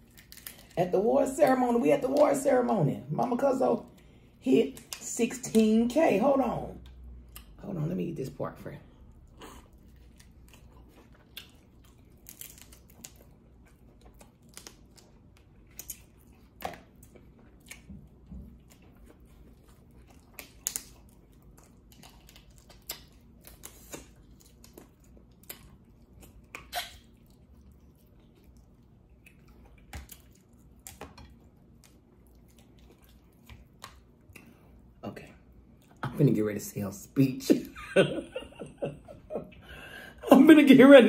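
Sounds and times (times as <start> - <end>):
person chewing with wet smacks: 6.8 - 7.6, 8.9 - 36.0.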